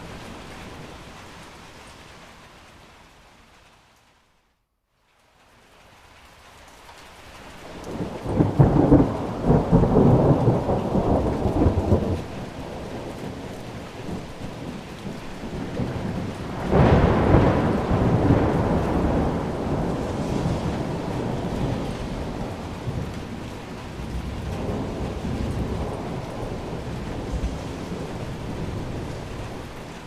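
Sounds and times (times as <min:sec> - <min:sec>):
steady rain: 0:00.0 - 0:30.0
rolling thunder: 0:07.7 - 0:30.0.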